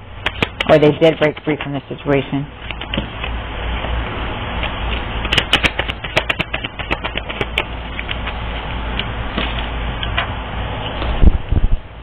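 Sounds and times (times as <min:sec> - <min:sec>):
cards being shuffled: 0:00.2 - 0:01.7, 0:04.6 - 0:08.4.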